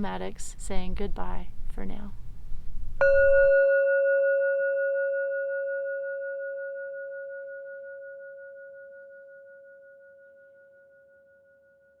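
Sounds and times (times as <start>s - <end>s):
singing bowl ringing: 3.0s - 12.0s.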